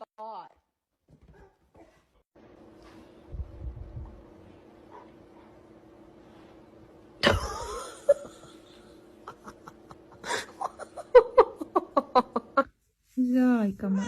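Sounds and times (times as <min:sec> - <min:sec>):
person laughing in high bursts: 0:07.2 - 0:12.7.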